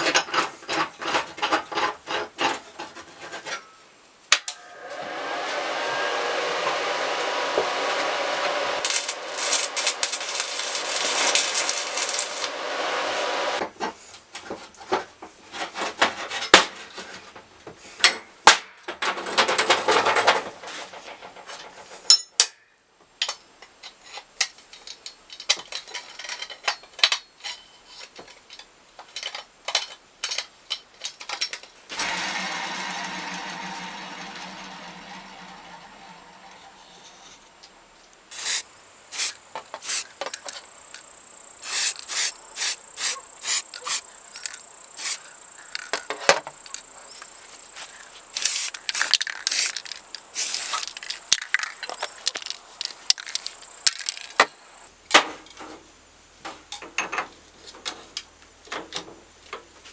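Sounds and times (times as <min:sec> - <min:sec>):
power tool whirring: 0:04.6 - 0:13.6, 0:31.9 - 0:36.1, 0:38.3 - 0:40.1, 0:41.6 - 0:45.3, 0:47.8 - 0:51.0.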